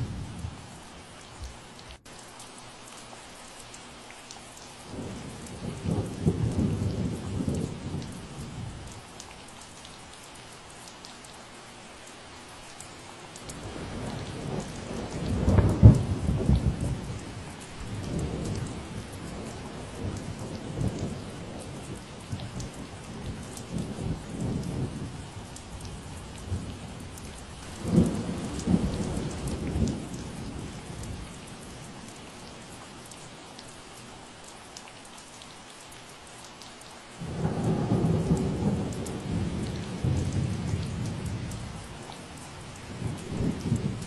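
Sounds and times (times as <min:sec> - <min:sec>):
steady rain falling: 0:00.0 - 0:44.0
thunder rolling: 0:37.2 - 0:41.8.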